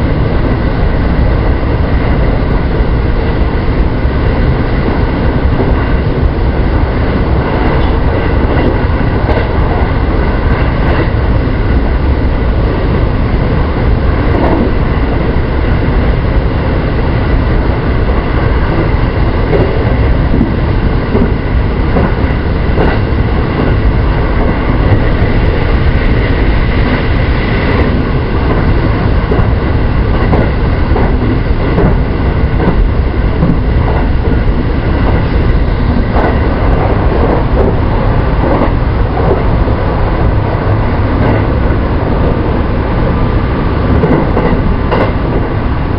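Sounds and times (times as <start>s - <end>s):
train wheels rumbling on rail: 0.0s - 45.9s.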